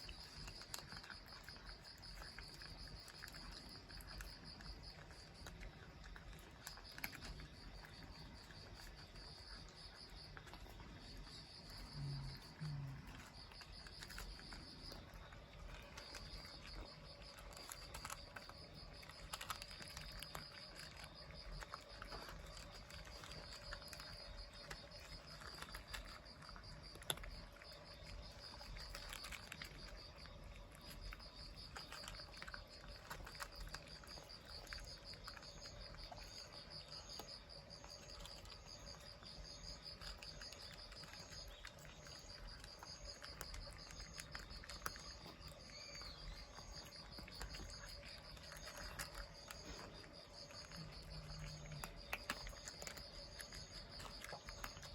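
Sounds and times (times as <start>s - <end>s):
insect trilling: 6.8s - 54.9s.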